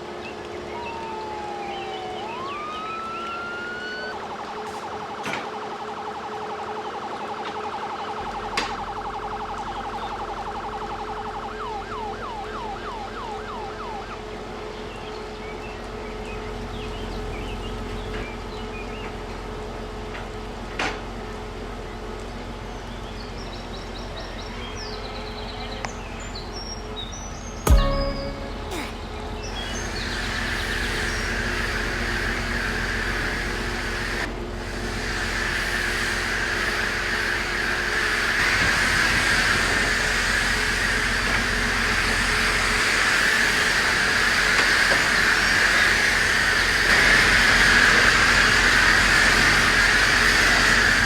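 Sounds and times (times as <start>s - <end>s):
emergency siren wailing and yelping: 0.0s - 14.4s.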